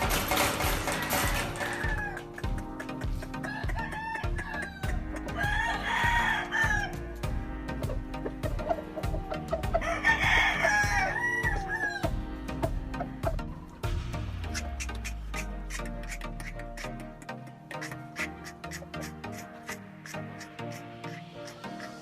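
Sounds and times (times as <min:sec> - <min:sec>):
background music with steady beat: 0:00.0 - 0:22.0
roosters crowing: 0:01.2 - 0:02.5, 0:03.3 - 0:13.3.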